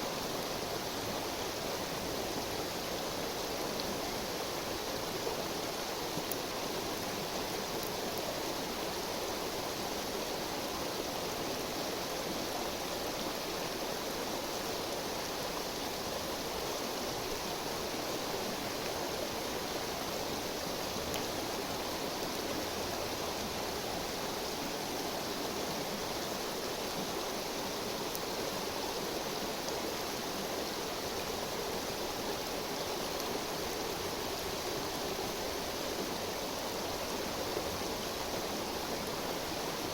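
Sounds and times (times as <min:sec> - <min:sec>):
river rushing and babbling: 0:00.0 - 0:39.9.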